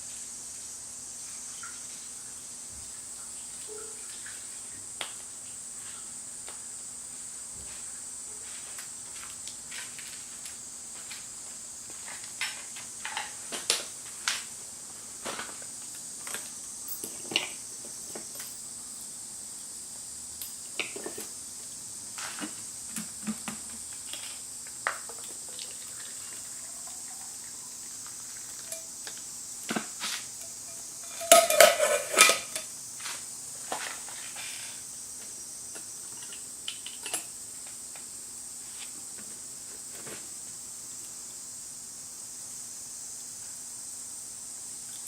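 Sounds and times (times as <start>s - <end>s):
metal cookware clinking: 30.4s - 32.7s.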